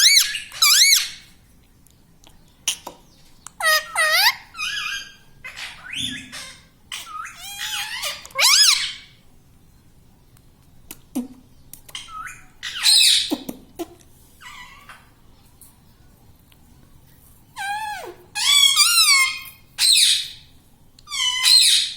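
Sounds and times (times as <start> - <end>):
parakeet squawking: 0.0 - 1.3, 3.6 - 9.1, 11.9 - 13.4, 17.6 - 20.4, 21.1 - 21.9.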